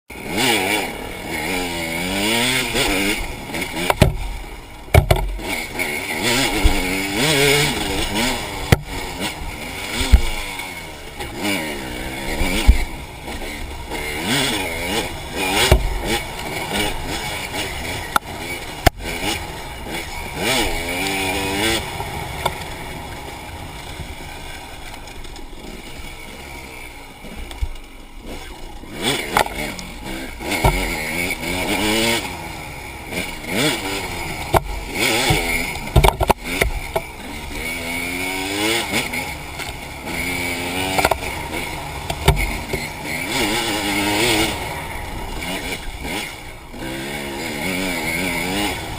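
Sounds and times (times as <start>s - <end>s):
dirt bike engine revving: 0.1s - 48.9s
sharp knocks and clatters: 3.8s - 4.3s, 4.9s - 5.5s, 8.6s - 9.0s, 15.6s - 16.2s, 30.5s - 31.0s, 34.5s - 37.1s, 42.0s - 42.9s.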